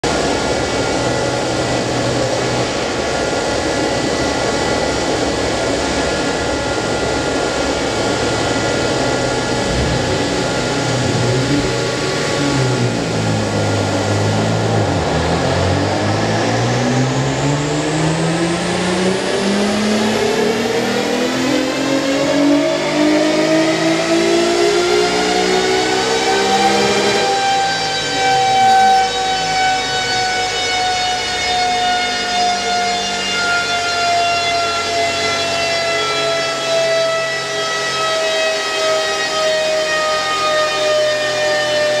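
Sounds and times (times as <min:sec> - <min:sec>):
car engine revving: 0:03.8 - 0:32.8.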